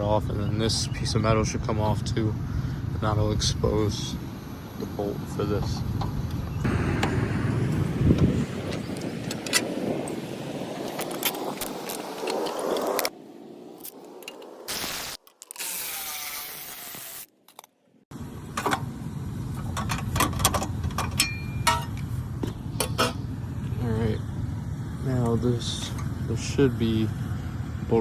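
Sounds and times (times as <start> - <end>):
metal tools clinking: 19.8 - 22.1.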